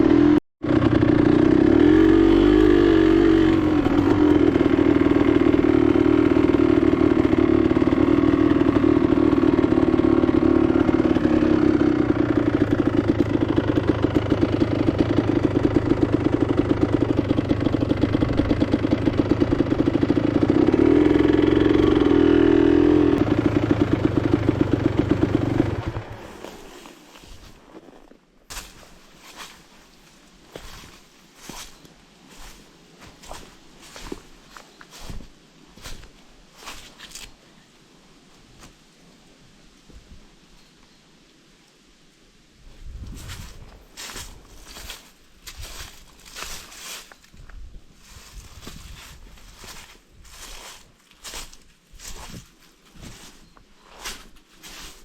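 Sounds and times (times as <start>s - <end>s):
motorcycle engine running: 0.0s - 27.8s, 28.5s - 37.3s, 43.0s - 47.1s, 48.0s - 55.0s.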